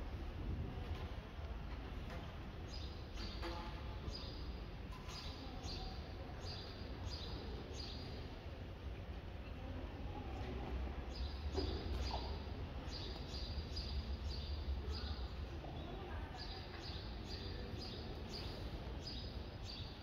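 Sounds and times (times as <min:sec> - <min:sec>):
small birds chirping: 0:04.1 - 0:08.4, 0:11.0 - 0:20.0.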